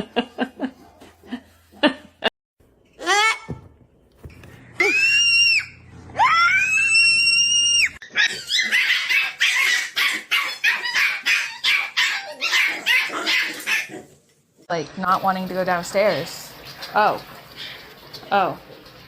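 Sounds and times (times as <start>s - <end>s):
dog crying high-pitched: 4.8s - 13.9s.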